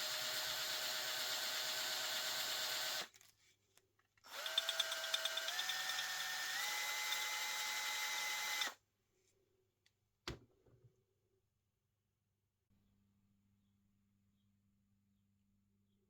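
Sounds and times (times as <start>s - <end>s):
power drill motor whining: 0.0s - 3.1s, 4.3s - 8.8s.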